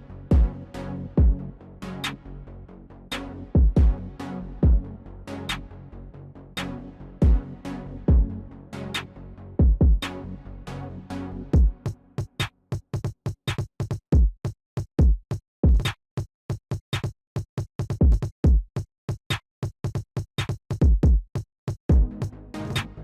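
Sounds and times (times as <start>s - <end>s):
electronic music with drum beat: 0.0s - 2.2s, 3.1s - 5.7s, 6.6s - 10.3s, 11.5s - 16.0s, 16.9s - 23.0s.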